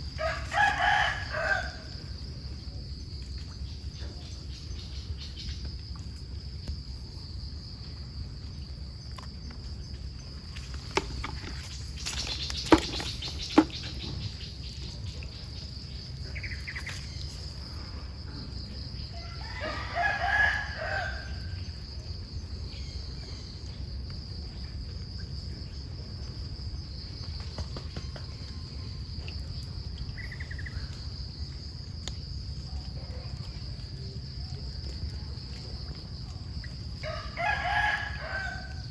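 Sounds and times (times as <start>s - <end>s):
rooster crowing: 0.2s - 2.0s, 19.2s - 21.5s, 37.0s - 38.9s.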